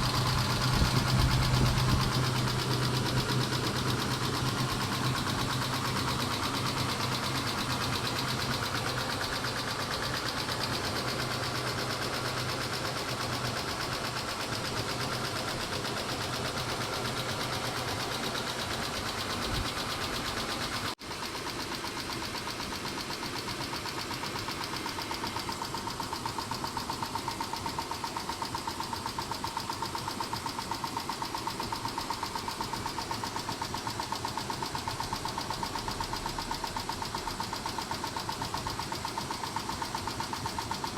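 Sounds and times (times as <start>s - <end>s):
engine idling: 0.0s - 40.9s
fast valvetrain ticking: 0.0s - 40.9s.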